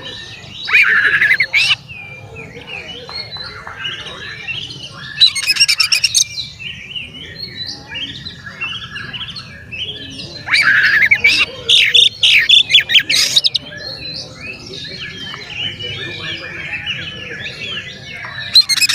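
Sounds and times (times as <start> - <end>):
bird singing whistled phrases: 3.9 - 18.9.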